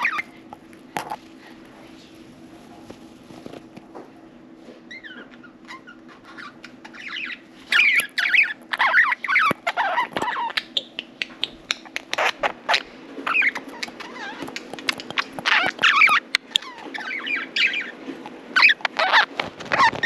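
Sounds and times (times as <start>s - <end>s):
budgerigars chirping and chattering: 0.0s - 0.3s, 4.9s - 18.0s, 18.6s - 20.0s
steady low hum: 0.0s - 20.0s.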